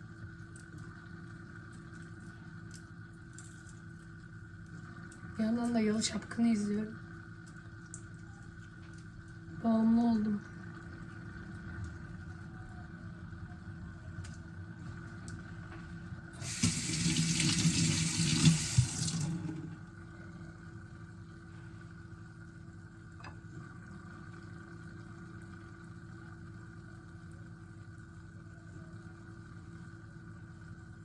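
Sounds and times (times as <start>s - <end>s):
faint steady hum: 0.0s - 31.0s
tap water running into sink: 16.4s - 19.7s.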